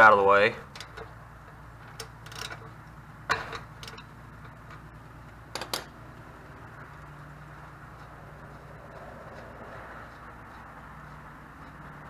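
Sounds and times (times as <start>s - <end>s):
steady low hum: 0.0s - 12.0s
hand tools clicking and tapping: 5.5s - 5.9s.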